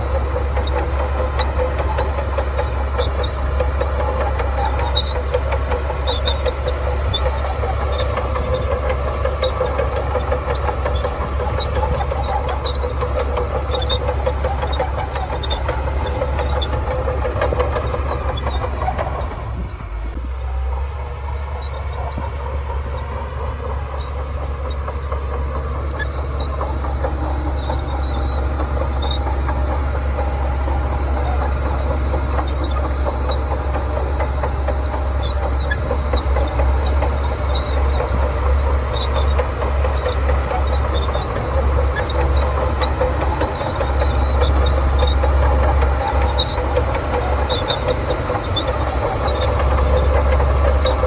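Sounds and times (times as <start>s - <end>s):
bulldozer diesel engine running: 0.0s - 51.0s.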